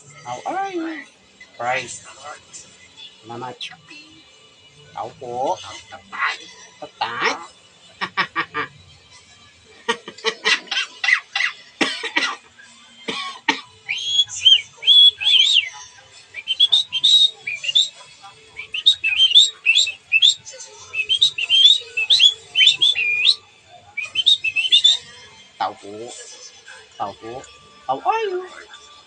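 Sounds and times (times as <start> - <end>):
pet bird calling: 13.9 - 15.7, 16.4 - 17.9, 18.6 - 23.4.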